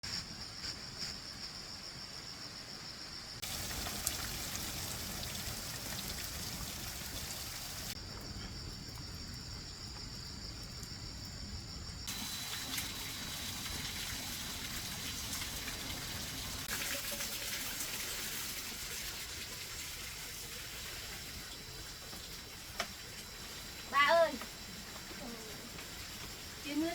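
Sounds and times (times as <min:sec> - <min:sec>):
water trickling and splashing: 0:03.4 - 0:08.0, 0:12.1 - 0:26.9.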